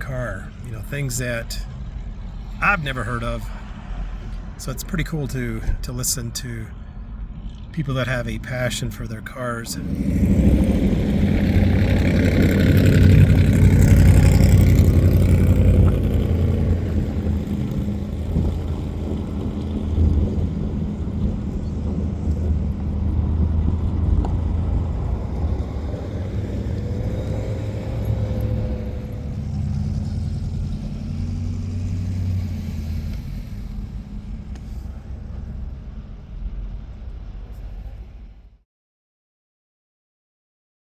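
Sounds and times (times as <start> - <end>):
car engine running: 7.4 - 38.5.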